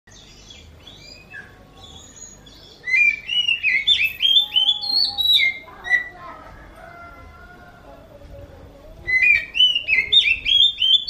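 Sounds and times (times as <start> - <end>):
bird chirping and whistling: 0.1 - 6.2, 9.0 - 11.0.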